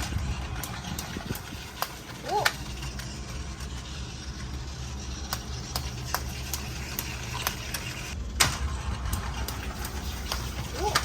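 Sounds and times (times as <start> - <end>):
toy train motor hum: 0.0 - 11.0
wheels clicking over track joints: 0.0 - 11.0.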